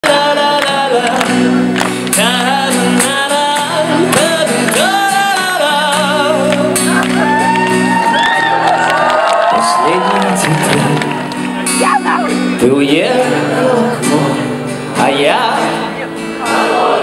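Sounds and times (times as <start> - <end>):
person singing with vibrato: 0.0 - 7.3, 11.8 - 17.0
acoustic band playing: 0.0 - 17.0.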